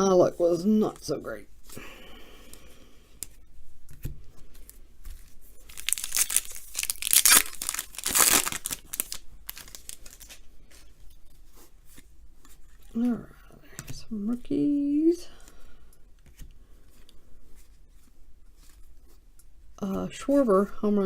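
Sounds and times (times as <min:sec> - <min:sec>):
foil wrapper tearing and crinkling: 0:05.6 - 0:10.4.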